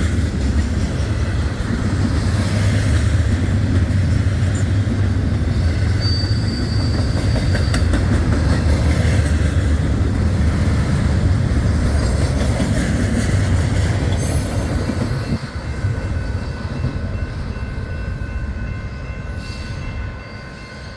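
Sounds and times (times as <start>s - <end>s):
wheel clatter on rails: 0.0s - 15.4s
freight train rumbling past: 0.0s - 20.9s
train wheel squeal: 4.1s - 10.0s, 11.8s - 20.9s
thin squealing tones: 5.6s - 8.0s.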